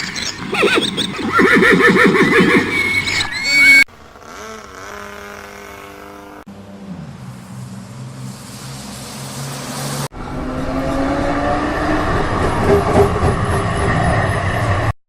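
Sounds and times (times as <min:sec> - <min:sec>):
car engine note: 0:04.2 - 0:13.2
hiss: 0:07.1 - 0:10.1.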